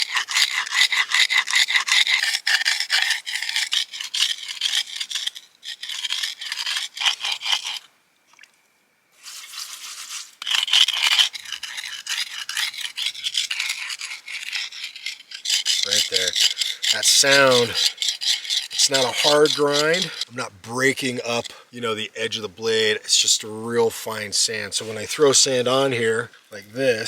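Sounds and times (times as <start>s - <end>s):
blade grinding on stone: 0.0s - 7.9s, 9.4s - 21.6s.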